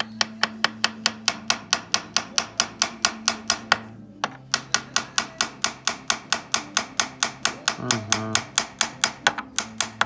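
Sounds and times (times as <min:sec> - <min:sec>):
hammer tapping on metal: 0:00.0 - 0:10.0.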